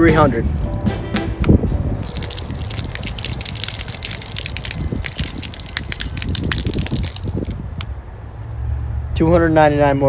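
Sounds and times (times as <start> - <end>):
water gushing from plastic bottle: 2.0 - 7.8.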